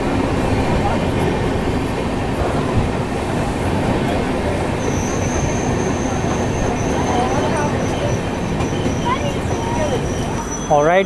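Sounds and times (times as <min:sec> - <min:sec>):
train wheels rumbling on rails: 0:00.0 - 0:11.0
high brake squeal: 0:04.7 - 0:11.0.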